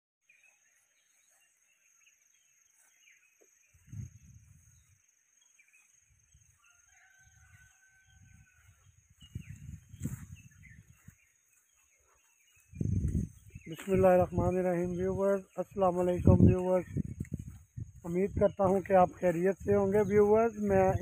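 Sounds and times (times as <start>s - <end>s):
birds chirping: 0.2s - 21.0s
microphone bumps: 12.8s - 13.7s.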